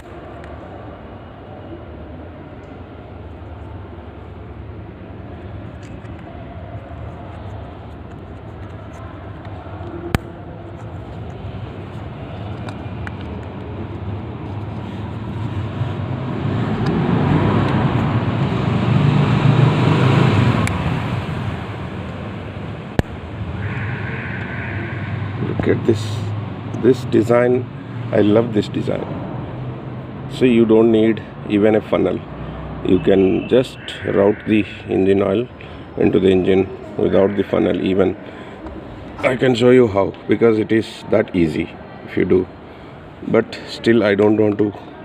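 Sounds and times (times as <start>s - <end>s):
road traffic: 0.0s - 45.0s
vehicle passing: 8.9s - 39.5s.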